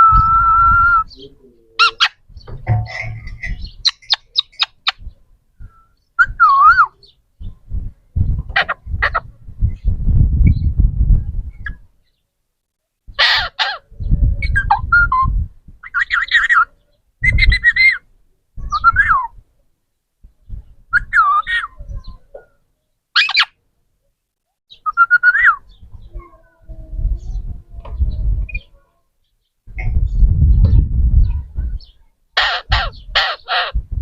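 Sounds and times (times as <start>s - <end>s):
low rumbling noise: 7.3s - 12.0s, 29.7s - 32.0s
parrot squawking and whistling: 13.2s - 13.8s, 23.2s - 23.5s, 24.8s - 25.6s, 32.4s - 33.8s.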